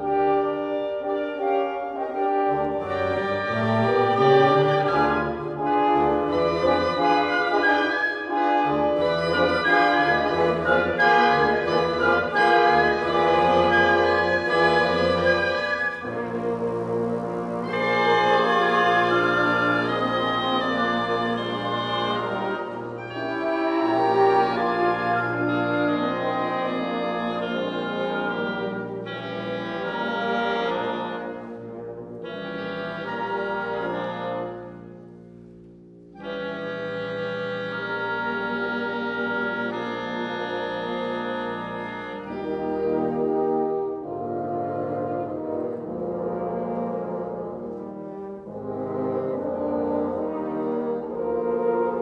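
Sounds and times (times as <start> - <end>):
chamber orchestra playing: 0.0 - 52.0
horns: 0.0 - 52.0.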